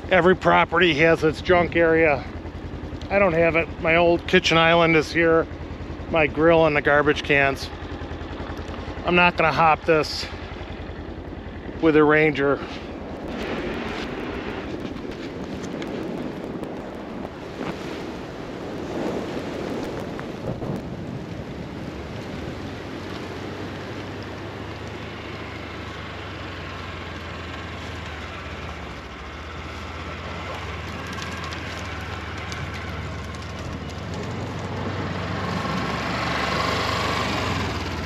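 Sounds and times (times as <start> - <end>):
vehicle engine humming: 0.0 - 38.0
wind and snow rushing: 11.6 - 25.8, 27.9 - 38.0.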